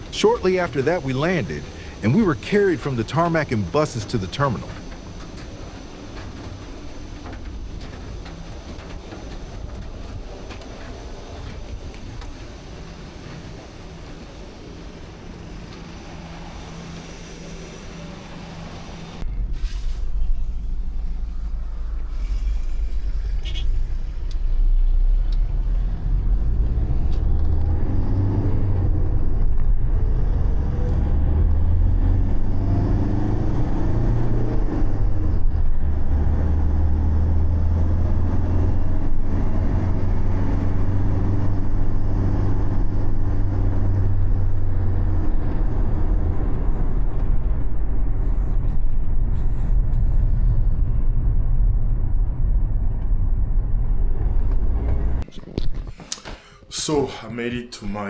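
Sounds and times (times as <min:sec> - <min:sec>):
vehicle engine and road rumble: 0:00.0 - 0:57.0.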